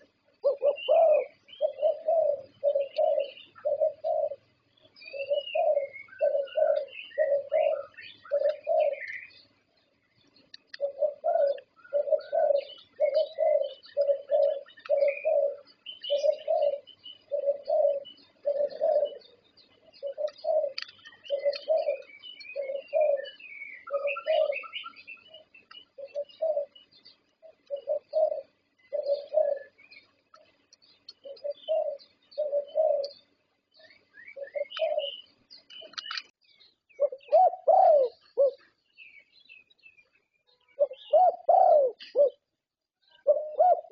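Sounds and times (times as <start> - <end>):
dove cooing: 0.0 - 36.2, 36.9 - 39.7, 40.7 - 43.9
faint high bird chirps: 0.0 - 43.9.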